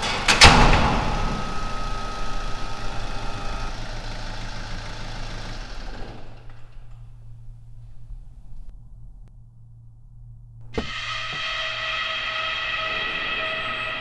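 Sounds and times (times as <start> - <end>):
sharp bang: 0.0 - 2.5, 10.7 - 14.0
car engine running: 1.1 - 8.8.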